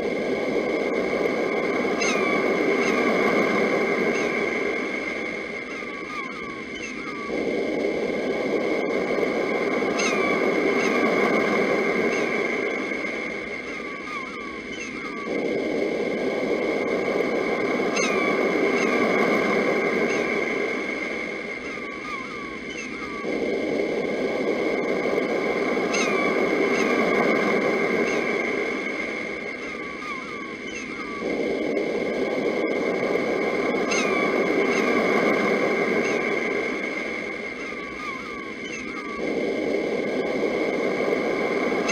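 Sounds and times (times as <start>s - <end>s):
birds chirping: 1.0s - 41.9s
sea waves washing in: 15.4s - 22.4s, 23.0s - 41.9s.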